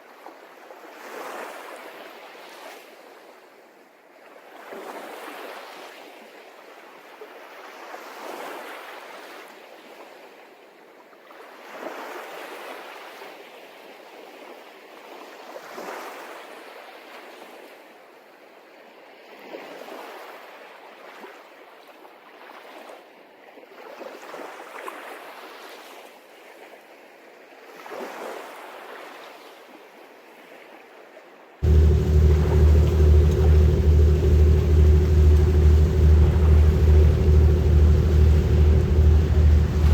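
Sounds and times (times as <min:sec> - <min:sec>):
sea waves washing in: 0:31.6 - 0:39.9.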